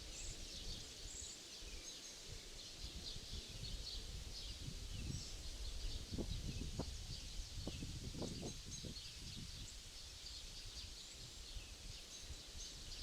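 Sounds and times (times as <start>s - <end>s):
small birds chirping: 0.0s - 13.0s
wind rumble on microphone: 0.0s - 13.0s.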